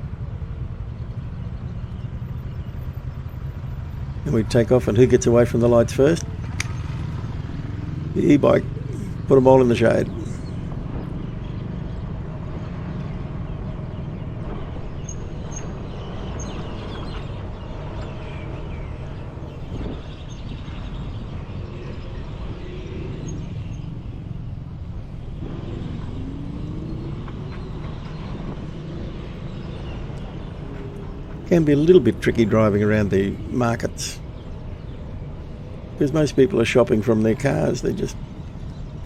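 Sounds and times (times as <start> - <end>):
passing cars and motorbikes: 0.0 - 39.0
vehicle engine accelerating: 1.5 - 39.0
wind rush: 13.4 - 32.2.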